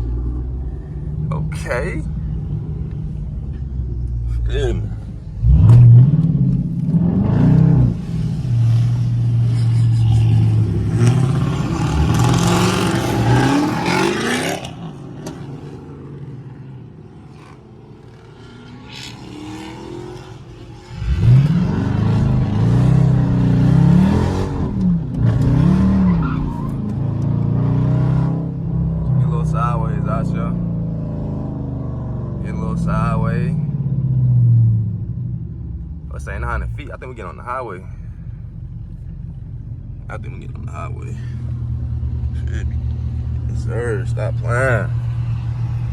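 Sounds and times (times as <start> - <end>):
car engine accelerating hard: 0.0 - 33.2.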